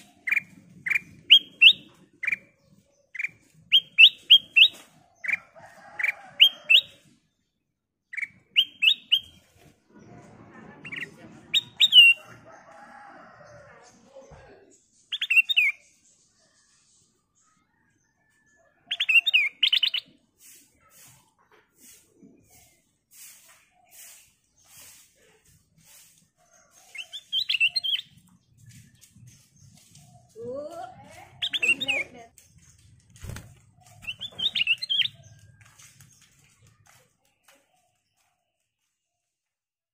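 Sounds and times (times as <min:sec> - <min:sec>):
bird whistled song: 0:00.0 - 0:02.5, 0:03.1 - 0:04.8, 0:08.1 - 0:09.4, 0:15.1 - 0:15.8, 0:27.0 - 0:28.2, 0:31.4 - 0:32.0
bird singing whistles: 0:00.3 - 0:02.4
soft hissing puffs: 0:20.4 - 0:26.9.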